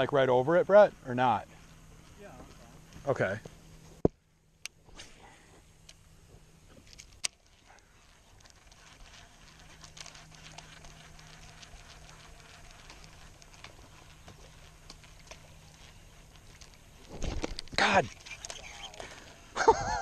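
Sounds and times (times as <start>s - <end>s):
reel ticking and pattering: 0.0s - 20.0s
fishing reel click: 6.9s - 19.3s.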